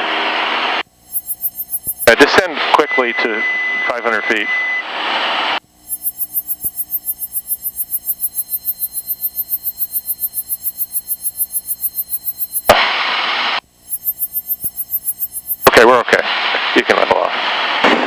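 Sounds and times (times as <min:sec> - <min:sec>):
rapid pulsing warning beeps: 0:01.0 - 0:04.9, 0:05.7 - 0:12.8, 0:13.7 - 0:15.7
intercom hiss: 0:01.2 - 0:06.9, 0:14.8 - 0:17.7.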